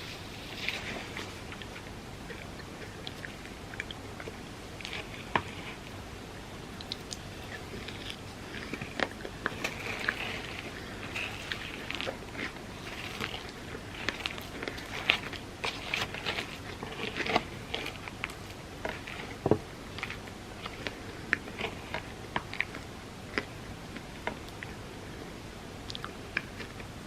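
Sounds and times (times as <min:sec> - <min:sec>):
chewing and crunching: 0:00.0 - 0:27.0
wet mouth clicks: 0:25.9 - 0:26.5.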